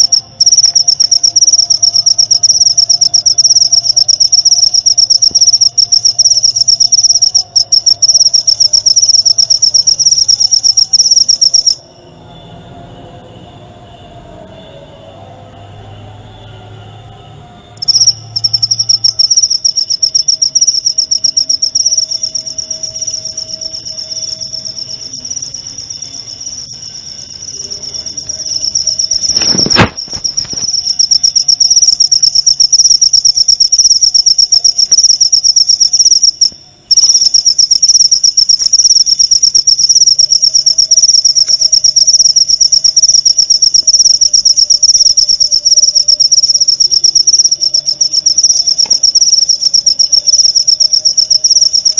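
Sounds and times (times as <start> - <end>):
cricket trilling: 0.0 - 15.1, 17.6 - 51.9.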